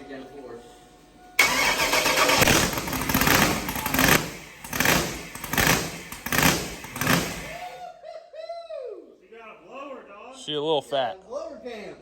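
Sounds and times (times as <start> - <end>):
loud uneven car engine running: 1.4 - 7.6.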